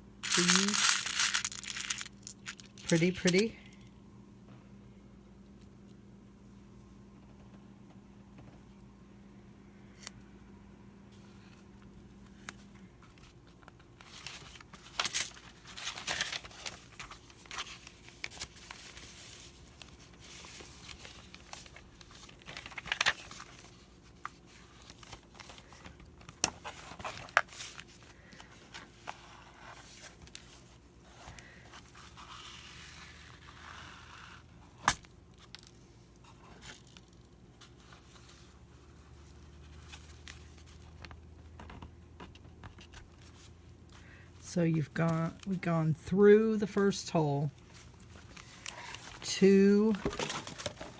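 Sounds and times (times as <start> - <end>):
paper and thread rustling: 0.2 - 3.5, 13.0 - 34.8, 44.8 - 50.9.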